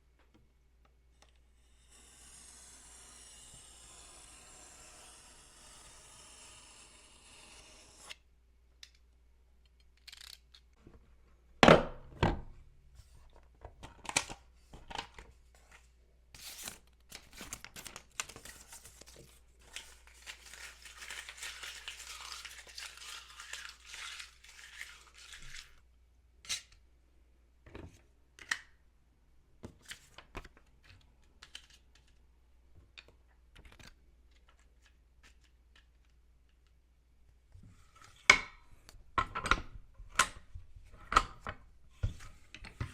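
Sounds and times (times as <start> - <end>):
paper tearing or crinkling: 16.4 - 25.8.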